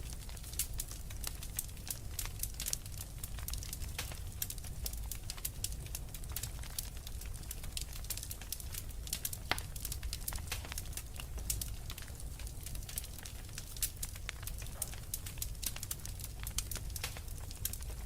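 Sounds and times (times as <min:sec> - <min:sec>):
low rumble of flame: 0:00.0 - 0:18.0
wood fire crackling: 0:00.0 - 0:18.0.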